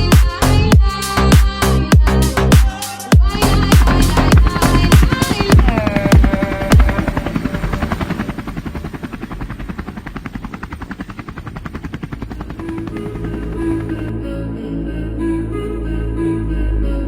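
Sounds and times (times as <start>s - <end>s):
rapid chopping pulse: 2.6s - 14.1s.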